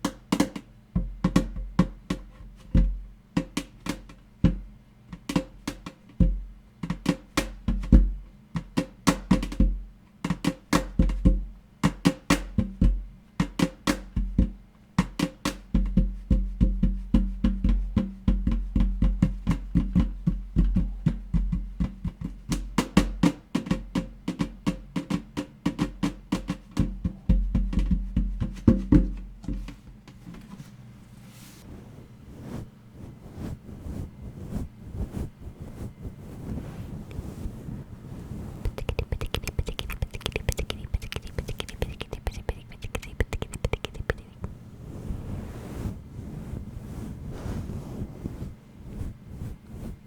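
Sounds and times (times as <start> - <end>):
fast tapping on an object: 0.0 - 29.8, 38.5 - 44.6.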